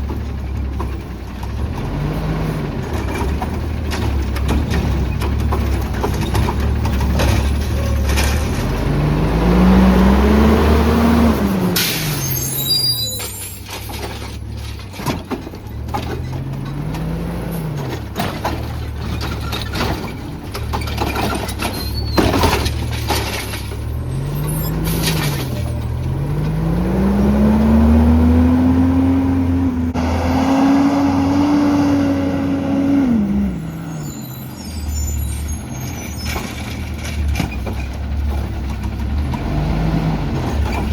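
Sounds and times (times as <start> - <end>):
truck engine revving: 0.0 - 14.3, 15.8 - 40.9
metal clanks: 2.8 - 8.8, 13.2 - 26.6.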